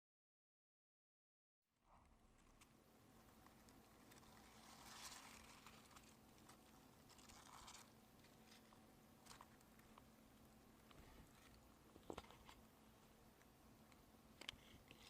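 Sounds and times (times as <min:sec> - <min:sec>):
soft rustling: 0:02.2 - 0:13.5.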